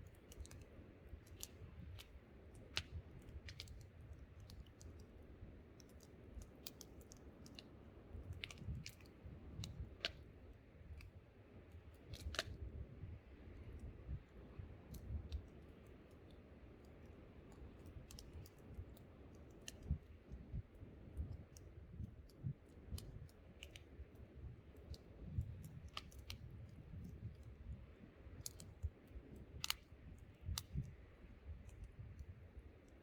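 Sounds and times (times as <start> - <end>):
campfire crackling: 0.0 - 12.7, 21.1 - 32.7.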